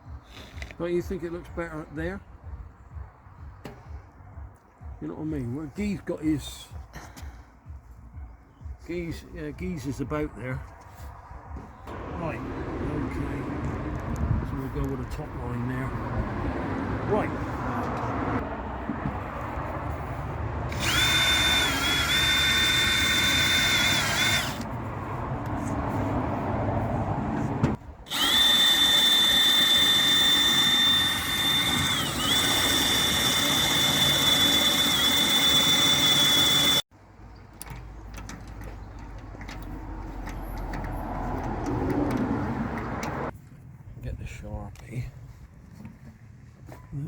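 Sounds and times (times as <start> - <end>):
power drill whining: 20.7 - 24.7, 28.1 - 36.8.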